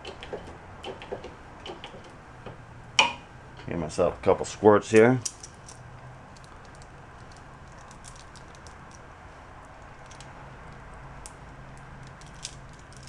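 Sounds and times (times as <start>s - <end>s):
grease gun clicks and taps: 0.0s - 3.8s.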